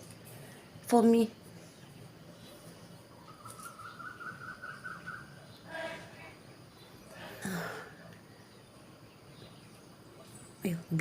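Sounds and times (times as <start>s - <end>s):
bird calling: 2.3s - 10.4s.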